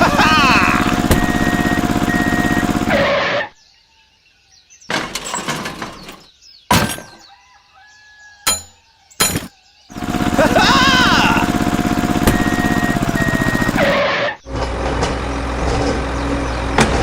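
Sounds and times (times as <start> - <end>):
steady motor hum: 0.0 - 3.4, 9.3 - 17.0
clattering crash of breaking: 4.9 - 7.3, 8.5 - 9.5.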